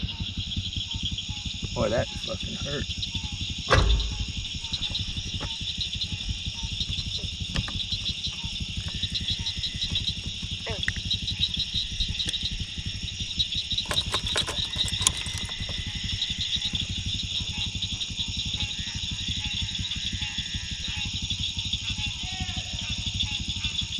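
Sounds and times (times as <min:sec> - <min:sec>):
low steady rumble: 0:00.0 - 0:21.8
night insects chirping: 0:00.0 - 0:23.9
sharp clicks: 0:12.2 - 0:12.5, 0:13.8 - 0:15.9.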